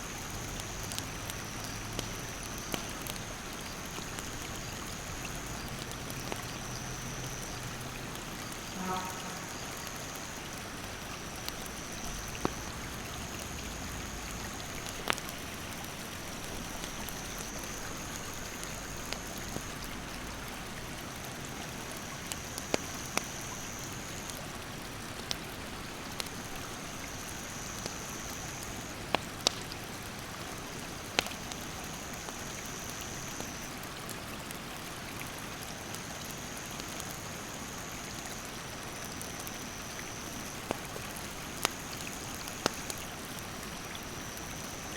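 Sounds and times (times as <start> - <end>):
campfire crackling: 0.0 - 44.9
insect buzzing: 8.6 - 10.4.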